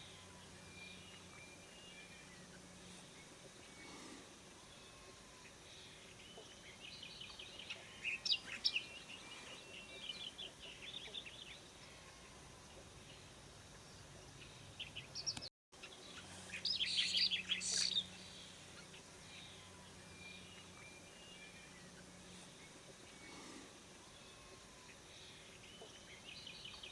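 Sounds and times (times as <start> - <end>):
bird chick chirping: 16.6 - 18.2.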